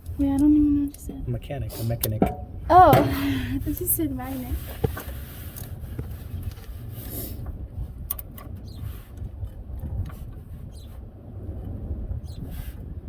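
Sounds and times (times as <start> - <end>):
steady low rumble: 0.0 - 13.0
hand tools tapping metal: 2.0 - 4.0.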